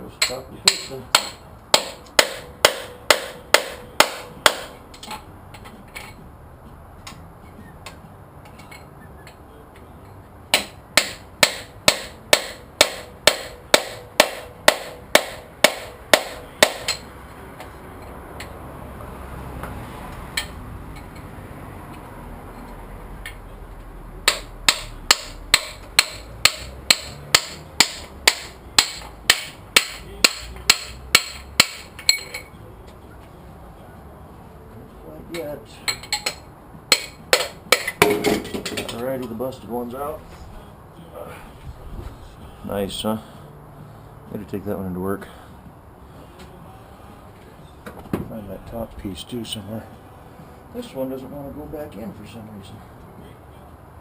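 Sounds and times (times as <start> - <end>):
hammer blows on metal: 0.1 - 6.2, 10.5 - 18.1, 24.2 - 32.6.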